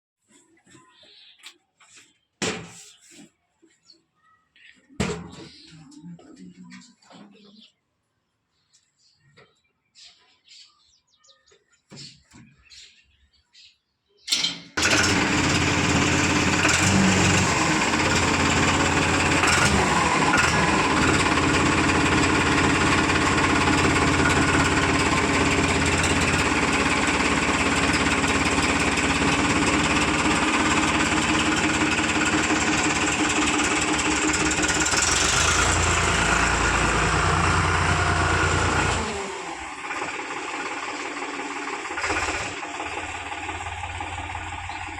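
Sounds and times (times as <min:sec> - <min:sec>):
heavy diesel engine running: 0:14.8 - 0:44.9.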